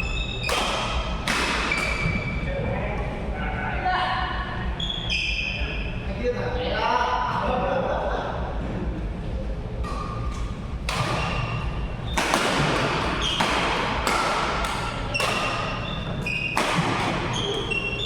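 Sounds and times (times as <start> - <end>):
shoes squeaking on floor: 0.0 - 2.5, 4.8 - 6.0, 9.9 - 14.0, 14.6 - 18.0
rackets hitting shuttlecock: 0.4 - 2.3, 9.8 - 18.0.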